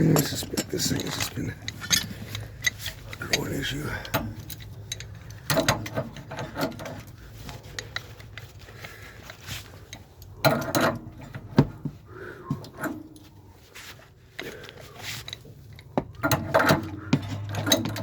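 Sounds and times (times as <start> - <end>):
hand tools clanking on metal pipes: 0.0 - 8.4, 9.2 - 11.5, 15.2 - 18.0.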